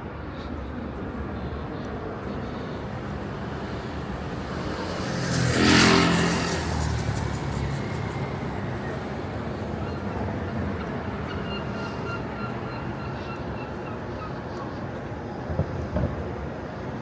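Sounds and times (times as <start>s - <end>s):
city traffic hum: 0.0s - 17.0s
vehicle engine passing: 3.1s - 11.3s.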